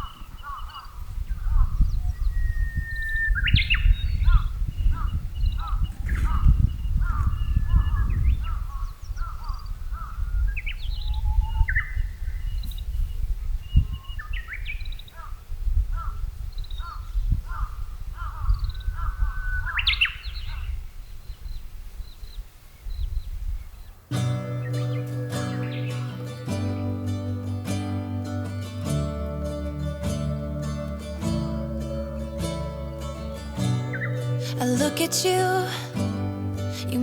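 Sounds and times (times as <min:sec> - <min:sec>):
birds chirping: 0:00.0 - 0:15.4, 0:16.0 - 0:37.0
crow cawing: 0:16.8 - 0:19.5.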